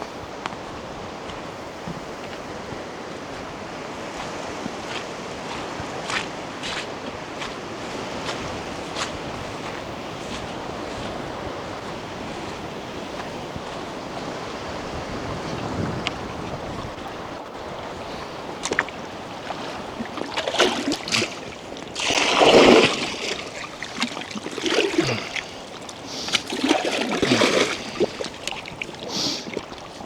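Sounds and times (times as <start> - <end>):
water splashing and sloshing: 0.0 - 30.0
wind on microphone: 7.3 - 30.0.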